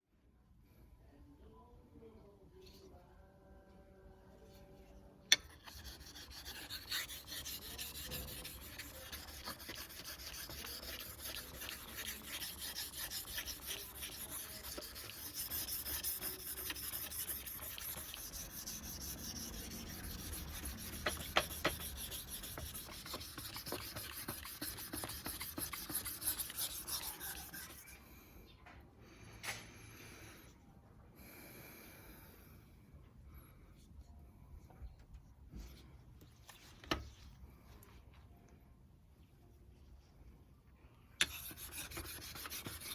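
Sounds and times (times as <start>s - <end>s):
knife blade scraping sharpener: 5.3s - 27.9s, 41.2s - 42.9s.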